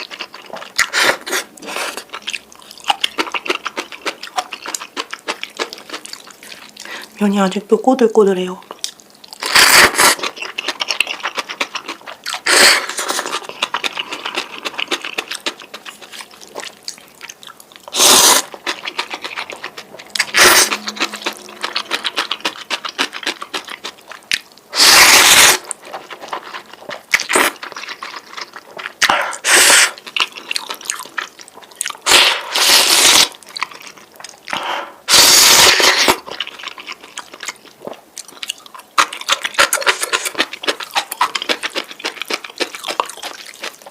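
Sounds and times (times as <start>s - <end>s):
wet chewing and smacking: 0.0s - 7.2s, 8.6s - 43.9s
person slurping noodles: 0.8s - 2.1s, 9.4s - 10.4s, 12.3s - 13.5s, 17.9s - 19.4s, 20.2s - 23.2s, 24.7s - 25.7s, 29.0s - 30.0s, 32.0s - 33.4s, 34.6s - 36.2s.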